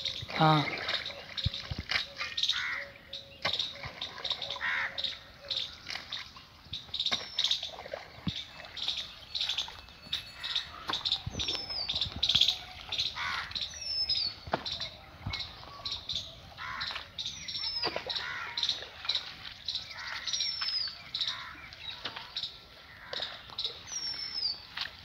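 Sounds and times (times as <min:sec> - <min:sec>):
small birds chirping: 0:00.0 - 0:24.8
whistled calls gliding down: 0:08.3 - 0:21.3.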